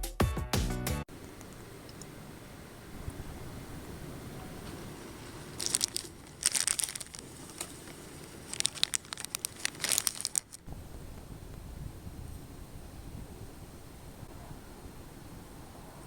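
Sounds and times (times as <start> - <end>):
packaging crinkling: 4.7 - 10.7.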